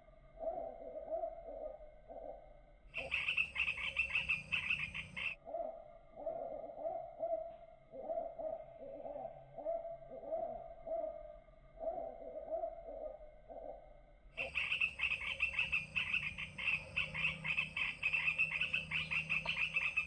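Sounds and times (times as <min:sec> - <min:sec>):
low pulsing bird call: 0:00.0 - 0:20.0
high-pitched bird chattering: 0:03.0 - 0:05.4, 0:14.4 - 0:20.0.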